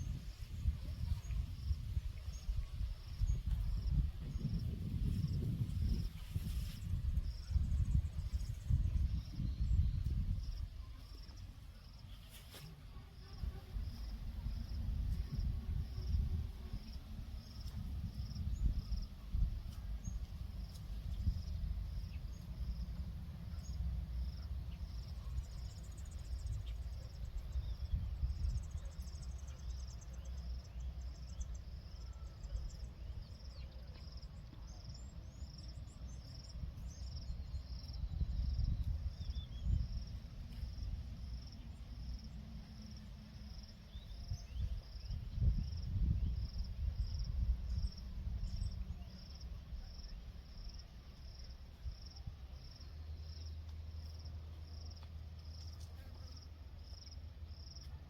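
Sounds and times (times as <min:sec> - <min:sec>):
cricket chirping: 0:00.0 - 0:12.2, 0:13.0 - 0:58.0
faint bird chirps: 0:24.4 - 0:35.5.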